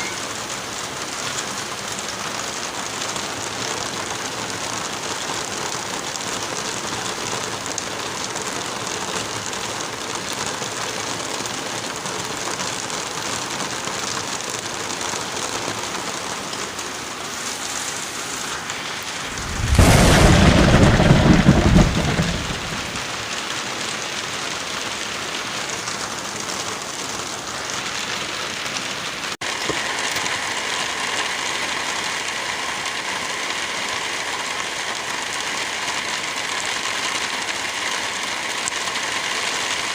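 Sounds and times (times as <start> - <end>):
heavy rain: 0.0 - 39.9
thunder rumbling: 18.7 - 23.4.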